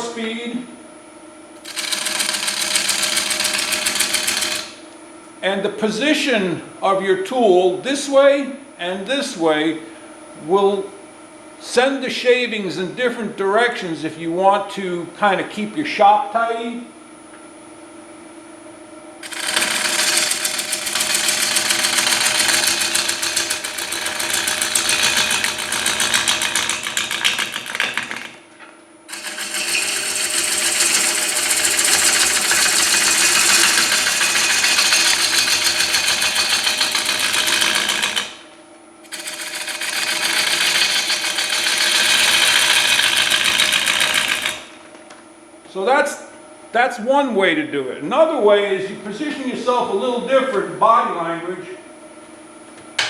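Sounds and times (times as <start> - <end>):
gouge cutting spinning wood: 1.6 - 4.8, 19.2 - 28.4, 29.1 - 44.8
lathe motor hum: 1.6 - 4.9, 19.2 - 28.4, 29.1 - 44.8.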